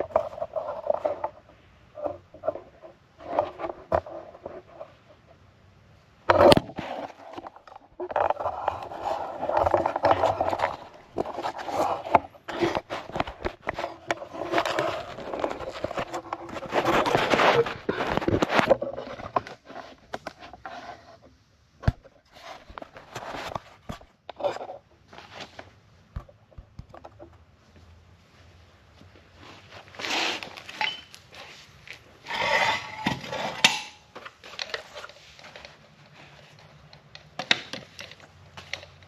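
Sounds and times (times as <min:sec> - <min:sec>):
metal pipe scraping and clanking: 0:30.0 - 0:31.5, 0:32.2 - 0:35.6.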